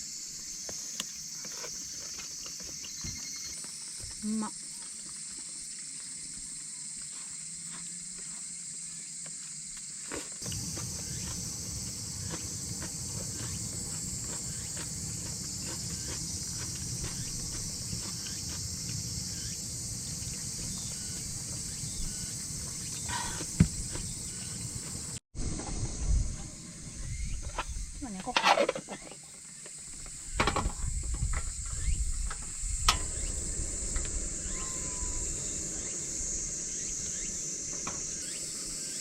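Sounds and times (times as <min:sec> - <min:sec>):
insects chorus: 0:00.0 - 0:39.0
low rumbling with faint ticks: 0:32.2 - 0:34.5.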